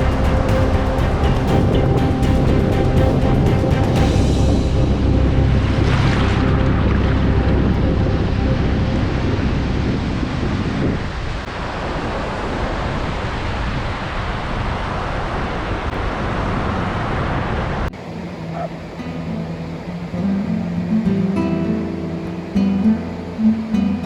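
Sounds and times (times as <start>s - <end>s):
soft music: 0.0s - 10.4s, 18.0s - 24.0s
ocean surf rushing: 0.0s - 24.0s.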